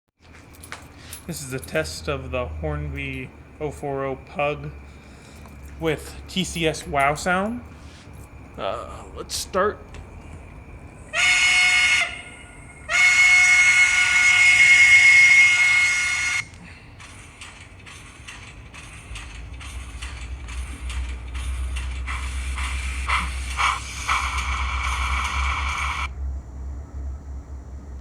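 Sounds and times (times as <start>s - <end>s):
steam exhaust chuffs: 0.8s - 28.0s
model train whistle: 11.1s - 16.6s, 22.1s - 26.1s.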